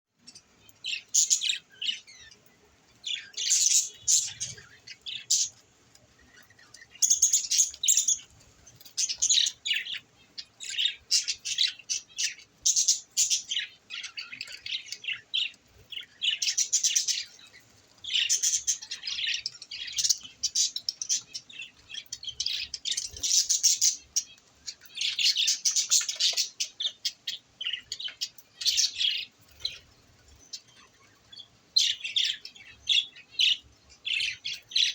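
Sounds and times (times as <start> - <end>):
budgerigars chirping: 3.1 - 5.6, 9.0 - 17.4, 18.0 - 29.8.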